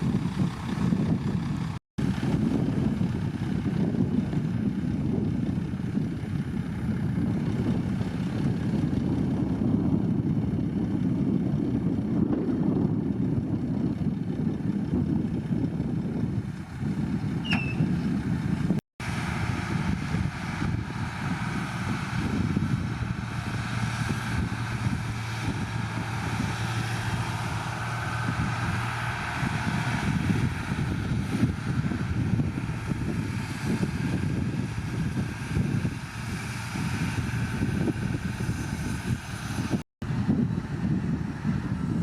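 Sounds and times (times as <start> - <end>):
diesel engine running: 0.0 - 42.0
short high squeal: 17.4 - 18.0.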